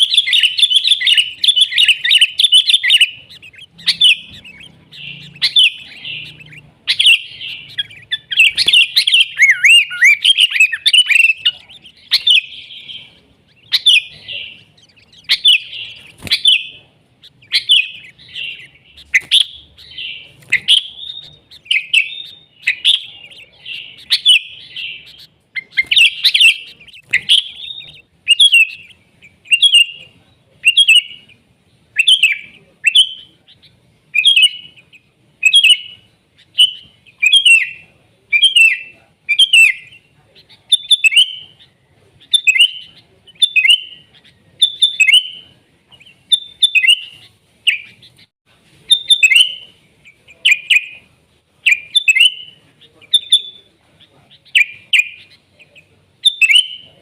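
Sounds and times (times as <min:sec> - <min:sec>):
bird singing: 0:00.0 - 0:48.3, 0:48.9 - 0:57.0.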